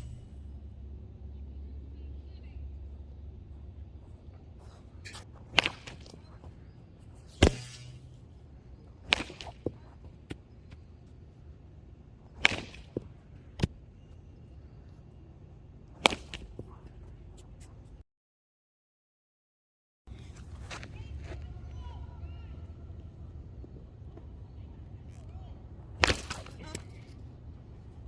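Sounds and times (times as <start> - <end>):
bat cracking baseball: 4.7 - 10.8, 12.3 - 13.8, 16.0 - 16.7, 26.0 - 27.1.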